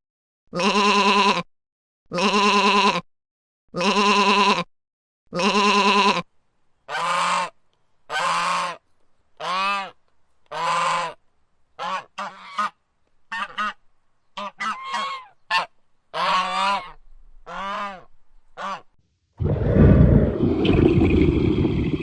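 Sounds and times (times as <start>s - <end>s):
goose honking: 6.9s - 7.5s, 8.1s - 8.8s, 9.4s - 11.2s, 11.8s - 13.8s, 14.4s - 18.9s.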